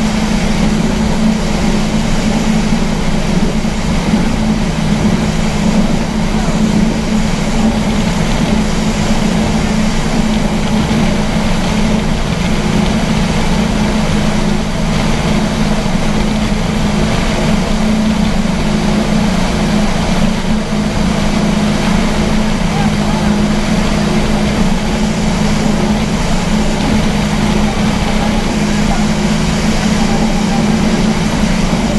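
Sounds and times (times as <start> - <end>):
rush of wind and water: 0.0 - 31.9
speedboat engine drone: 0.0 - 31.9.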